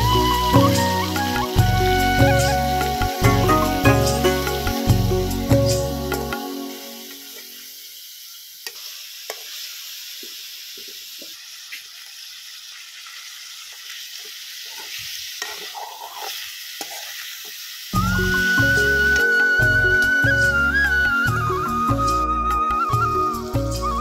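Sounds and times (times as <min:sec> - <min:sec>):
chicken frying in pan: 0:04.2 - 0:21.6.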